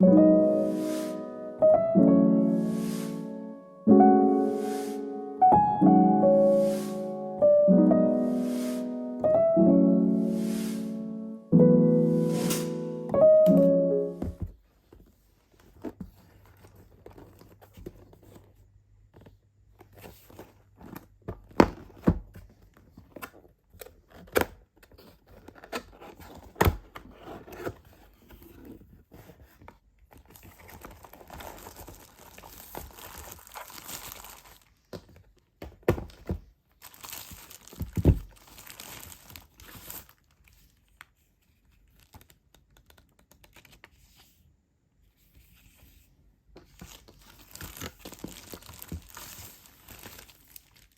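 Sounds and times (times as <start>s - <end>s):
packaging crinkling and tearing: 30.1s - 34.9s, 36.8s - 41.1s, 41.7s - 43.9s, 46.8s - 50.9s.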